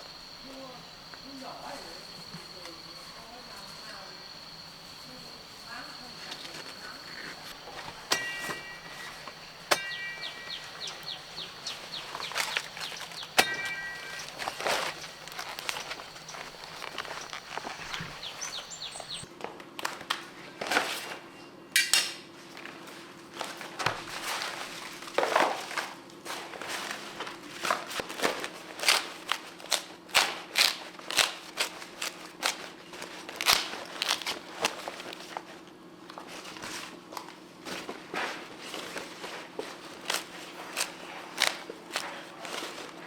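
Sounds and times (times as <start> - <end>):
dry corn plants crunching and snapping: 7.4 - 20.7, 22.6 - 35.4, 38.2 - 43.0.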